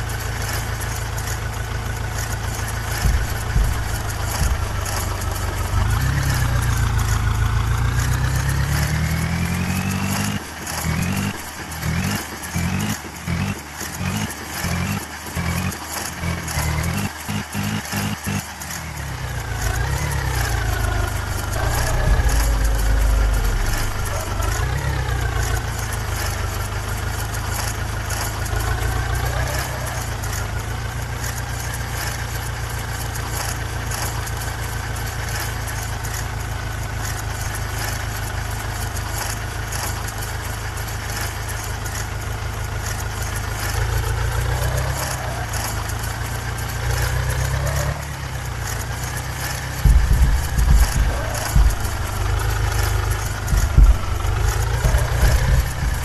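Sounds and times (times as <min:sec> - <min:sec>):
tractor diesel engine revving: 0:00.0 - 0:56.0.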